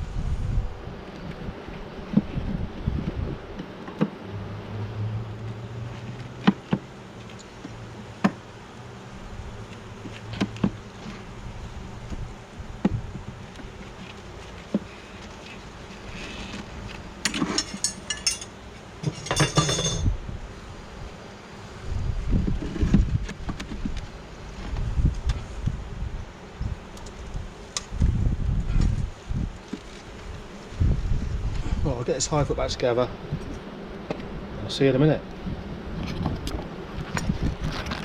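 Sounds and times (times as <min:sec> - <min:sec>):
bees buzzing: 0:00.0 - 0:38.0
knocks of wooden hive parts: 0:06.0 - 0:08.5, 0:09.8 - 0:11.2
rapid clattering of hive parts: 0:09.6 - 0:11.4, 0:12.4 - 0:20.1.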